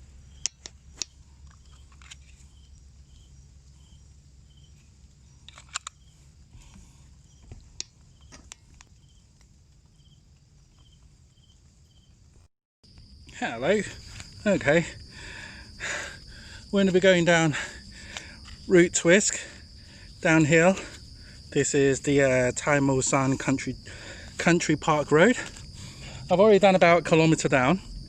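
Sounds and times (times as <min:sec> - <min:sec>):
faint insect chirping: 0:00.0 - 0:28.0
sharp clicks: 0:05.4 - 0:06.0.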